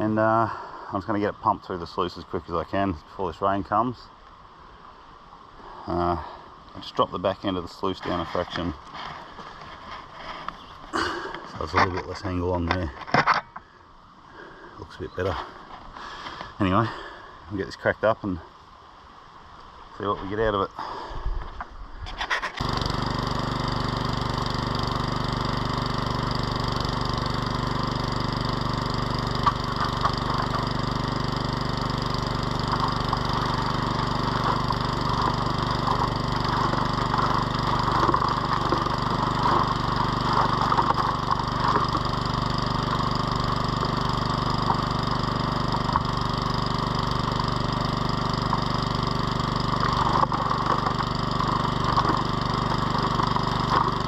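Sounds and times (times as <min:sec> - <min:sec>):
small water pump engine running: 0:22.4 - 0:54.0
gravel and water rattling: 0:29.2 - 0:46.4, 0:47.7 - 0:54.0.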